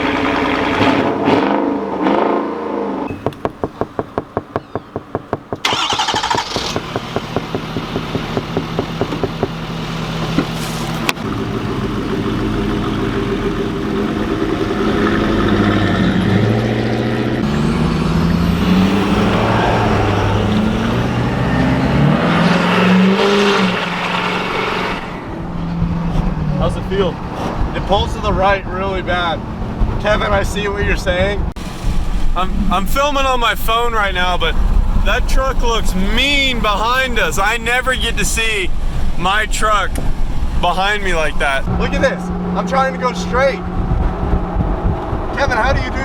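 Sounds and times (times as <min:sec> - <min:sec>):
pickup engine loping and revving: 0:00.0 - 0:46.0
pickup engine cranking: 0:03.1 - 0:26.4, 0:31.6 - 0:41.7.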